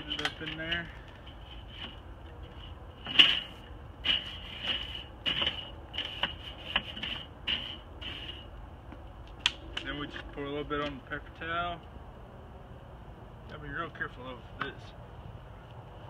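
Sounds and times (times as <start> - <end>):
metal clinks from charcoal grill: 0.0 - 1.0.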